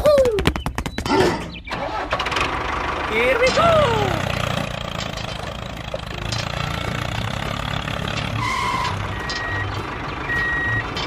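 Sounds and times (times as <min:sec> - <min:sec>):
small vehicle engine running: 0:01.7 - 0:11.0
two-tone reversing alarm beeps: 0:08.4 - 0:11.0.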